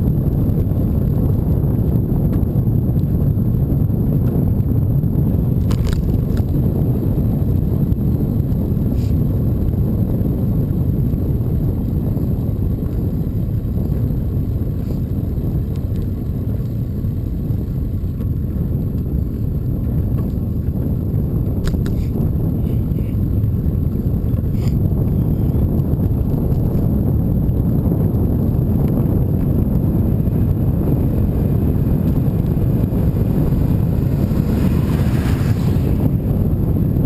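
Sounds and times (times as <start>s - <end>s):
bicycle ride rumble: 0.0s - 37.0s
wind buffeting microphone: 0.0s - 37.0s.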